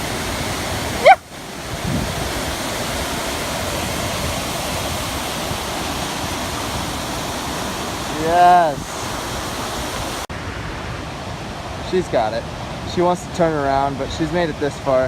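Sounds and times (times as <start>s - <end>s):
waterfall rushing: 0.0s - 15.0s
short rising vocal call: 1.0s - 1.3s.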